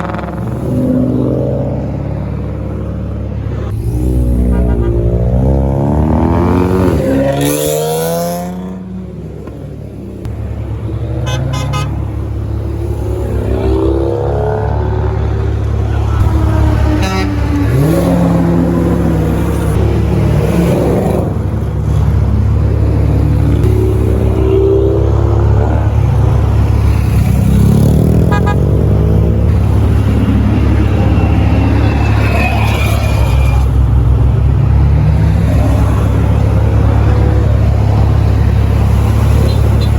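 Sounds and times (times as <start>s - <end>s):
car engines revving: 0.0s - 39.9s
car horn toot: 11.2s - 12.0s, 16.2s - 18.0s, 28.2s - 28.8s.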